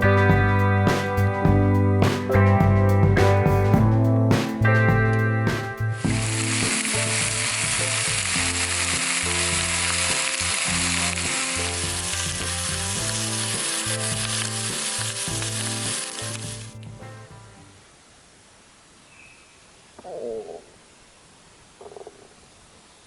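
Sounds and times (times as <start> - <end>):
background music: 0.0 - 17.8
food sizzling in a pan: 6.2 - 16.6.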